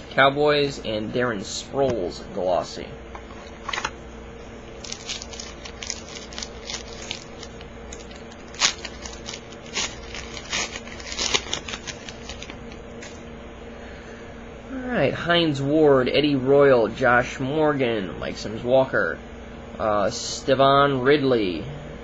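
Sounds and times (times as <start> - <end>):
cards being handled: 4.8 - 13.2
foil wrapper crinkling and tearing: 4.8 - 13.2.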